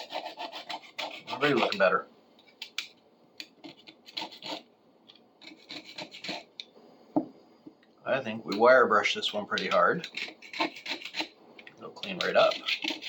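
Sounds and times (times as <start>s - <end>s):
hand brush scrubbing metal: 0.0s - 1.9s, 12.0s - 13.0s.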